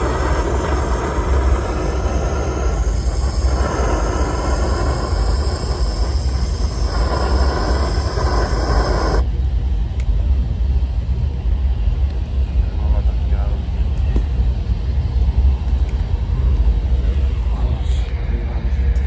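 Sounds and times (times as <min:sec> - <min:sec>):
gas torch burning: 0:00.0 - 0:10.1.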